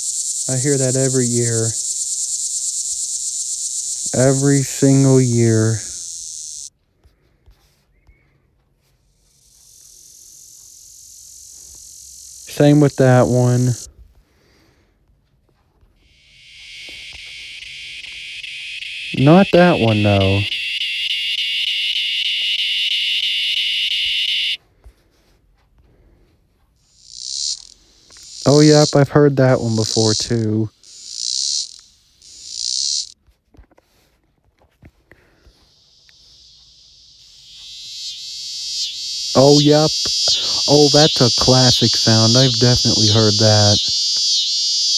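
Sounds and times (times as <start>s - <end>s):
cicada high buzz: 0.0s - 6.7s, 9.4s - 13.9s, 16.0s - 24.6s, 27.0s - 33.2s, 35.6s - 44.9s.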